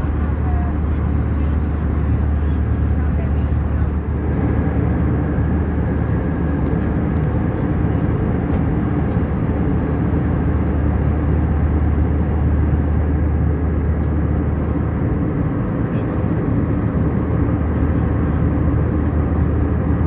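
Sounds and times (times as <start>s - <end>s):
airplane cabin engine drone: 0.0s - 20.0s.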